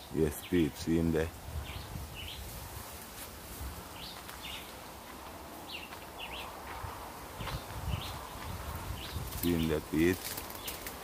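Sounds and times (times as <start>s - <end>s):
bird chirping: 3.9s - 5.0s, 5.6s - 6.7s, 7.3s - 11.0s.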